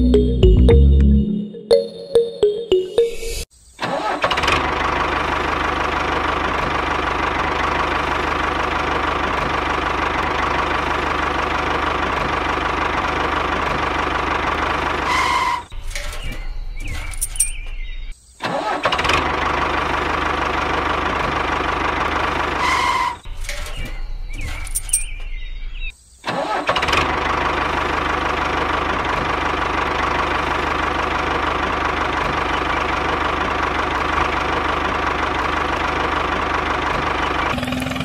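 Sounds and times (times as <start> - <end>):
small engine running: 26.8 - 38.0.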